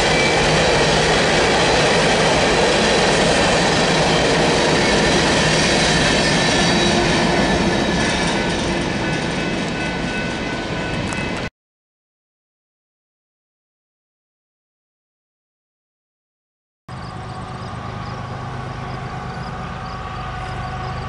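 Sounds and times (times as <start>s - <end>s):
freight train rolling past: 0.0s - 11.5s, 16.9s - 21.0s
wheels squealing on rail: 0.0s - 11.5s, 16.9s - 21.0s.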